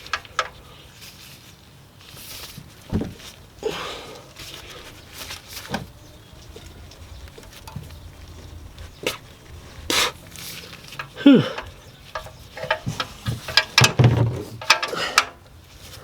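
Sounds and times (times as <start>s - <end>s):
wrench clicking and scraping: 10.5s - 14.0s, 14.6s - 15.4s.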